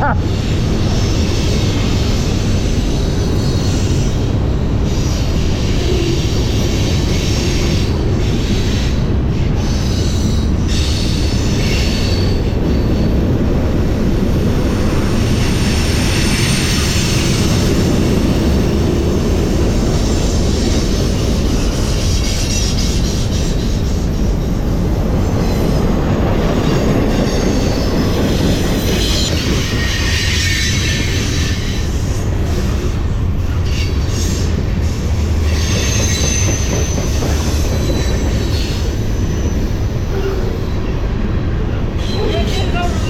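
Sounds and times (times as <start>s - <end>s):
train wheels rumbling on rails: 0.0s - 43.0s
high metallic wheel squeal: 19.9s - 24.6s, 25.2s - 41.0s.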